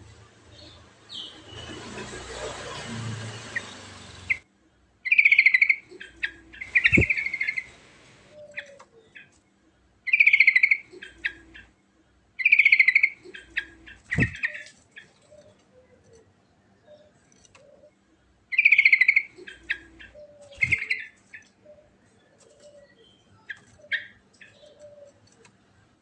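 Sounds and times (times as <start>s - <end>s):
bird chattering song: 5.0s - 9.3s, 10.1s - 11.8s, 12.4s - 25.5s
steady hiss: 6.6s - 8.4s.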